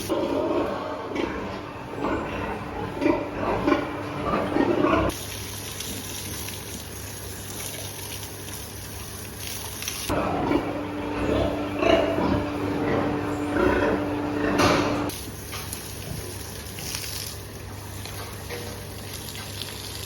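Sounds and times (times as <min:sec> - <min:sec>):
steady machine hum: 0:00.0 - 0:05.1, 0:10.1 - 0:16.4
pigs grunting: 0:00.1 - 0:05.2, 0:10.1 - 0:15.1.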